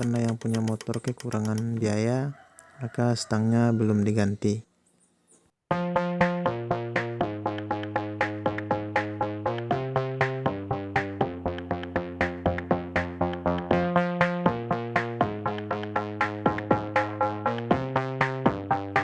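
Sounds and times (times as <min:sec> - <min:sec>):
drum machine beat: 0:05.7 - 0:19.0
synthesizer chords: 0:05.7 - 0:19.0.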